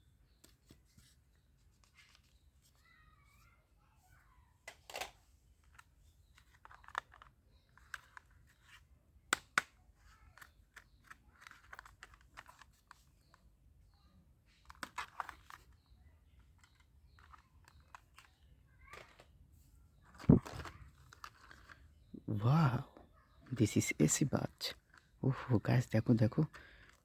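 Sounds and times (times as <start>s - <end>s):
plastic toys tapping and clicking: 4.7s - 13.4s, 14.5s - 19.4s, 20.0s - 21.9s, 24.6s - 27.0s.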